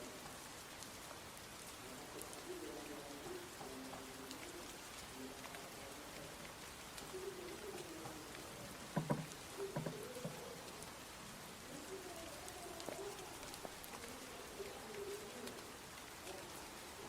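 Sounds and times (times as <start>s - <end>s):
light rain pattering: 0.0s - 17.0s
dove cooing: 1.9s - 17.0s
soft knocks: 8.9s - 10.4s.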